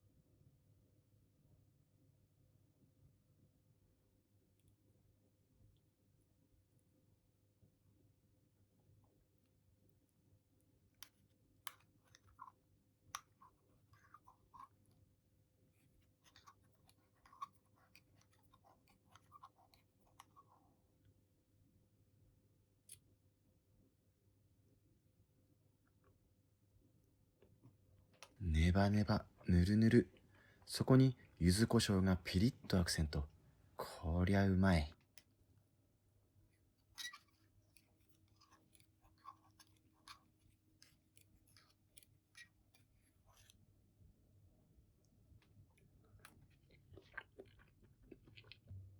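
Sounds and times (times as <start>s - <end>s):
quiet chewing: 9.0s - 21.2s, 27.0s - 34.1s, 35.0s - 43.8s, 44.7s - 48.9s.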